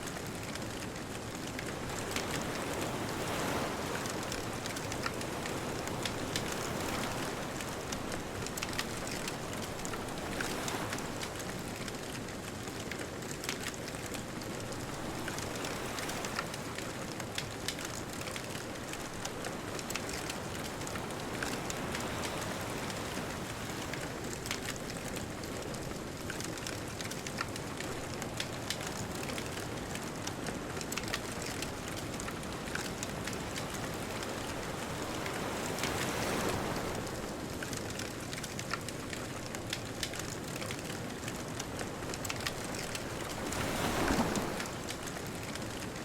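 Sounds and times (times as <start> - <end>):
bonfire crackling: 0.0 - 46.0
distant ocean waves: 0.0 - 46.0.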